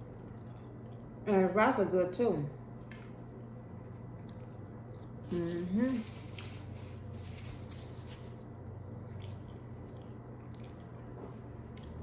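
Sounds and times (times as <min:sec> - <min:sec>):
chewing food with wet mouth noises: 0:00.0 - 0:01.3, 0:02.6 - 0:05.2, 0:08.8 - 0:12.0.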